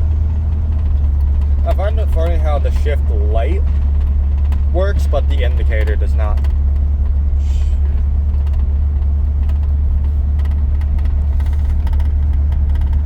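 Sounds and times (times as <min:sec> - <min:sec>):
pickup engine and road noise: 0:00.0 - 0:13.0
light ticks or rattles: 0:08.0 - 0:13.0.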